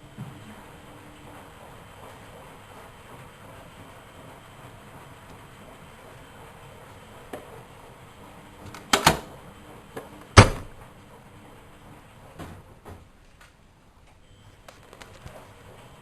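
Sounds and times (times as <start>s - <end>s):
clicks and knocks: 8.7s - 9.3s
washing machine door thumping shut: 8.8s - 9.3s, 10.4s - 10.8s.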